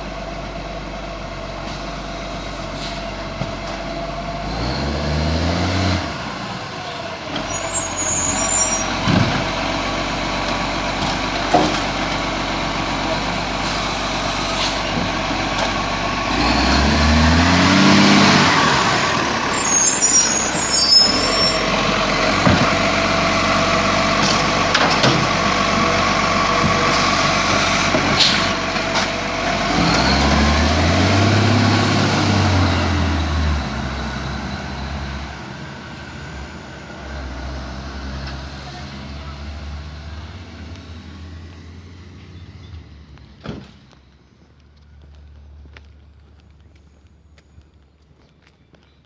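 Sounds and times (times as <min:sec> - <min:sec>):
garbage truck engine revving: 0:00.0 - 0:42.2
knocks and clatter: 0:10.5 - 0:12.3, 0:22.3 - 0:23.0, 0:24.2 - 0:25.4.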